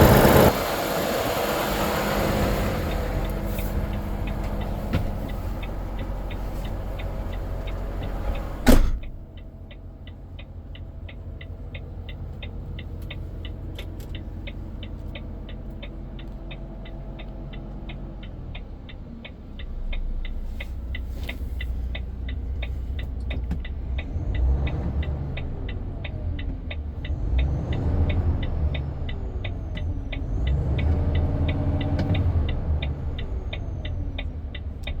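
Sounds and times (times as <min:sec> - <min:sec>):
diesel truck engine running: 0:00.0 - 0:35.0
loud slam: 0:08.6 - 0:09.2.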